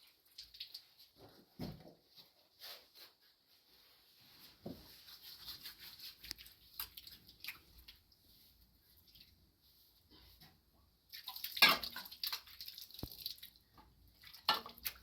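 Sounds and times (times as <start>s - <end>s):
water drips and splashes: 0.0s - 1.3s, 5.4s - 9.4s, 11.1s - 15.0s.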